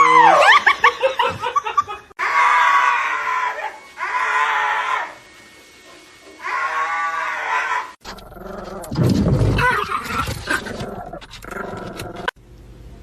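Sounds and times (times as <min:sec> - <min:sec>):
dog screaming: 0:00.0 - 0:00.7, 0:02.2 - 0:05.2, 0:06.4 - 0:08.0, 0:09.4 - 0:10.6.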